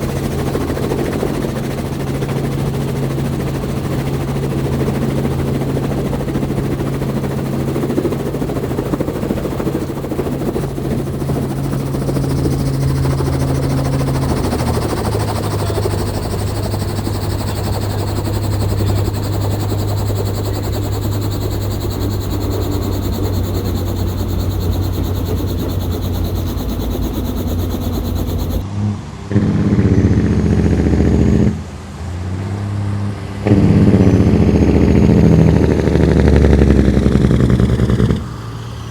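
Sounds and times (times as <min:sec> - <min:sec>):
truck diesel engines running: 0:02.1 - 0:28.6.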